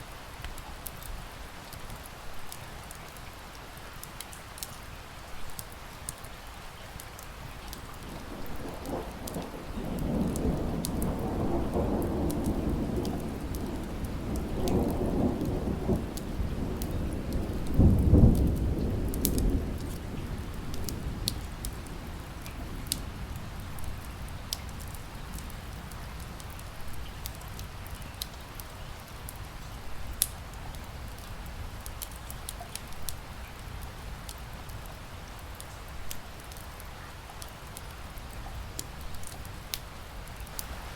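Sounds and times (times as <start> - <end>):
steady rain: 0.0 - 40.9
rolling thunder: 8.0 - 25.9
wood fire crackling and popping: 12.0 - 20.1, 30.1 - 33.2.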